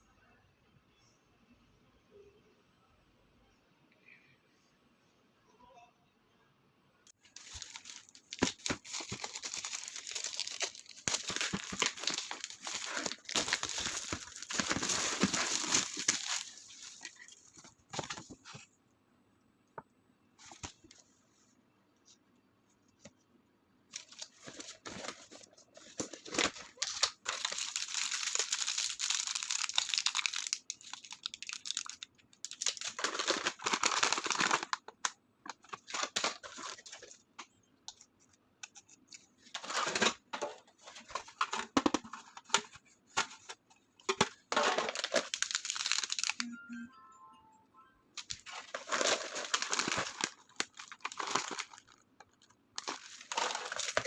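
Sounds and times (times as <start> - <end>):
packaging tearing and crinkling: 7.3 - 17.3, 24.0 - 34.8, 44.1 - 46.4, 48.2 - 54.0.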